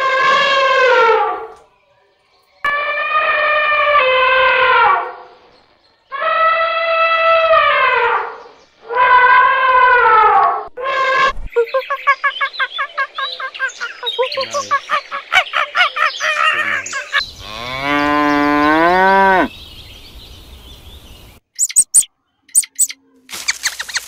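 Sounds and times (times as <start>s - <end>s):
monkey chattering calls: 11.5s - 17.4s, 21.6s - 24.0s
cow mooing: 16.6s - 19.5s
short high squeaks: 21.6s - 24.0s.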